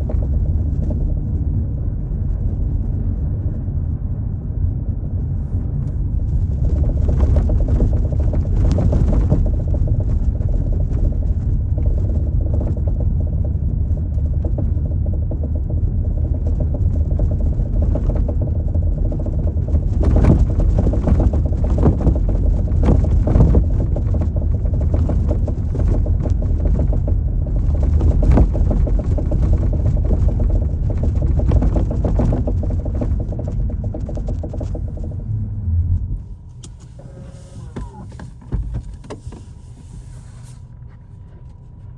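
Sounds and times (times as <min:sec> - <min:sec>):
road rumble inside car: 0:00.0 - 0:41.9
knocks and rattles from car rear: 0:06.5 - 0:35.2, 0:37.7 - 0:39.5.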